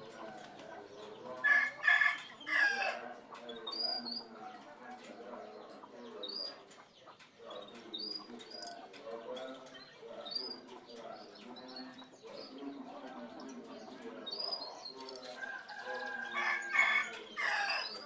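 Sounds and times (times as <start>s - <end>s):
rooster crowing: 15.4s - 18.0s.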